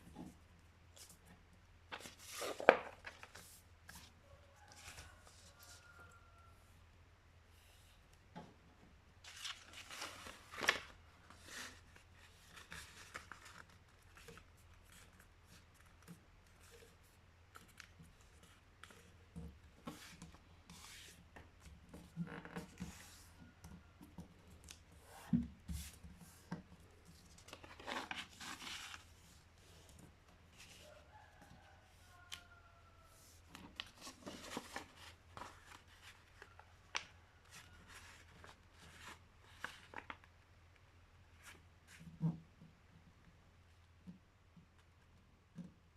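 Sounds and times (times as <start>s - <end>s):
paper rustling and folding: 1.9s - 5.9s, 9.2s - 19.2s, 24.6s - 31.2s, 33.2s - 40.4s.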